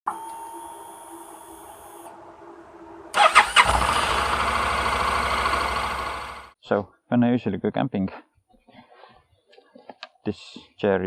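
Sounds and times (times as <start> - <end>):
motorcycle engine starting and running: 0.7 - 6.6.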